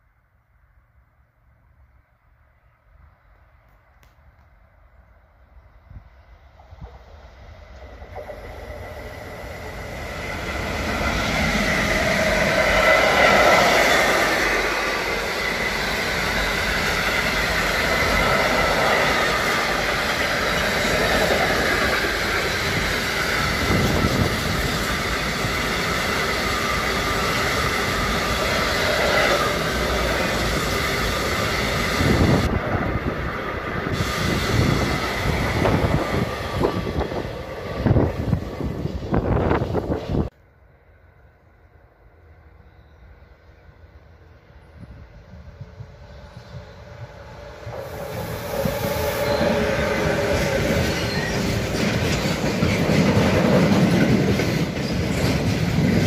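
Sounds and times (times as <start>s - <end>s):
train wheels rumbling on rails: 5.9s - 40.4s, 43.8s - 56.0s
thin high squeal: 48.3s - 52.0s.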